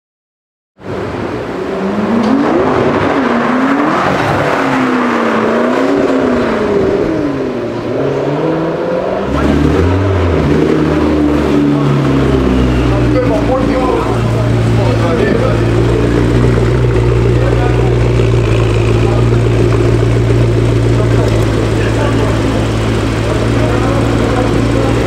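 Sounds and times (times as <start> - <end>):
car engine revving: 0.8 - 25.0.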